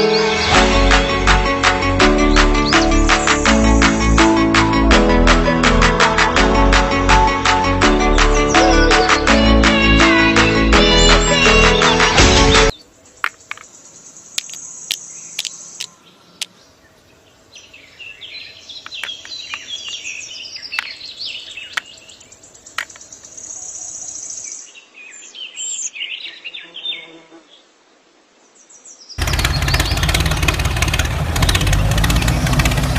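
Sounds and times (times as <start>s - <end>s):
birds chirping: 2.1s - 3.9s, 10.2s - 27.7s, 28.5s - 32.9s
sharp clicks: 14.4s - 16.5s.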